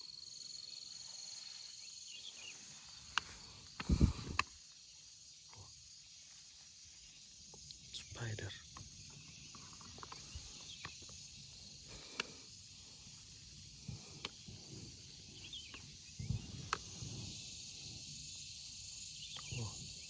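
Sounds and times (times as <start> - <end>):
high-pitched insect chorus: 0.0 - 20.0
rustling through vegetation: 0.4 - 8.3.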